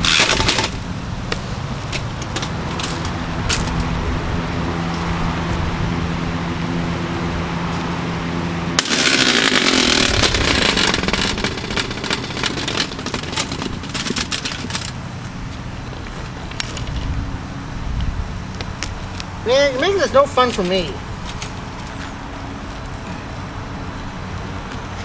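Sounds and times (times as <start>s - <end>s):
knocks and rattles: 0.0s - 4.0s, 8.8s - 15.0s
loud clattering: 0.0s - 4.0s, 8.8s - 15.1s
box fan motor humming: 0.0s - 25.0s.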